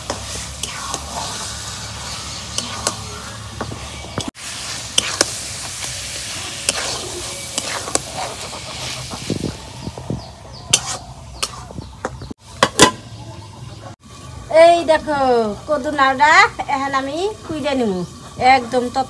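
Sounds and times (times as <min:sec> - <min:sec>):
metal spatula scraping a pan: 0:00.0 - 0:09.6, 0:10.6 - 0:11.8
meat sizzling in oil: 0:00.0 - 0:11.5.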